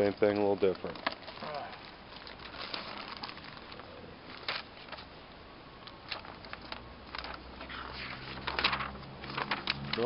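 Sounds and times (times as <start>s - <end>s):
handling rustles: 0.0s - 5.2s.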